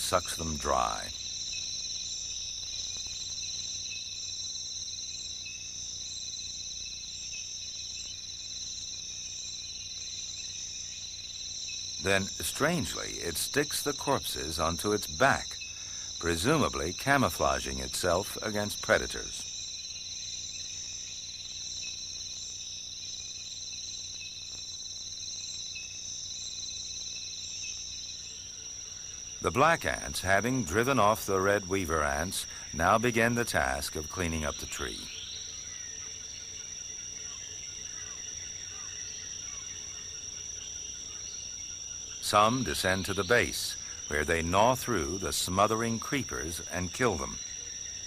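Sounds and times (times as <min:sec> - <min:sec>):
insects calling: 0:00.0 - 0:48.0.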